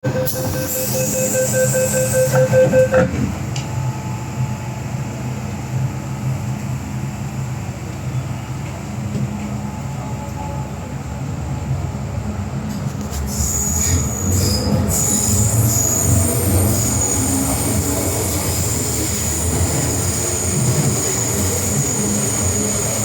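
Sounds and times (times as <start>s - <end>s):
high steady tone: 0.0s - 3.1s
metro train rumbling: 0.0s - 23.0s.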